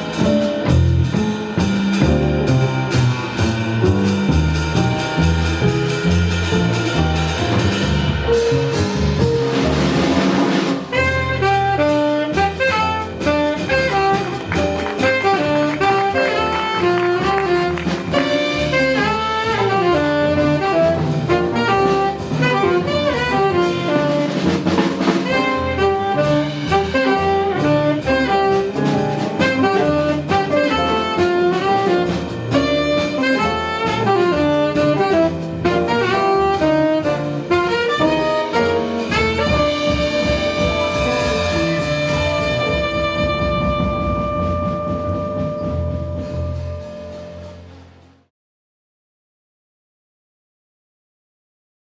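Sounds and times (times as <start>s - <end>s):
double bass: 0.0s - 48.3s
drum kit: 0.0s - 48.3s
saxophone playing: 10.9s - 24.6s, 25.2s - 47.7s.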